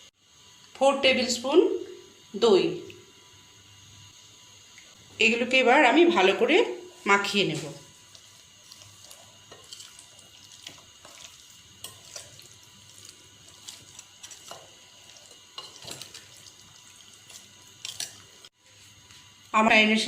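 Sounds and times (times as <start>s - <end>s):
chicken squelching in marinade: 8.0s - 18.5s.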